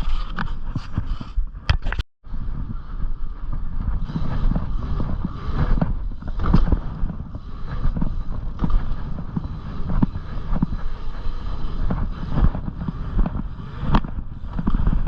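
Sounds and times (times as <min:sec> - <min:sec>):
bike knocking and rattling: 0:00.0 - 0:15.0
wind buffeting microphone: 0:00.0 - 0:15.0
bicycle tyres rumbling on dirt: 0:02.3 - 0:15.0.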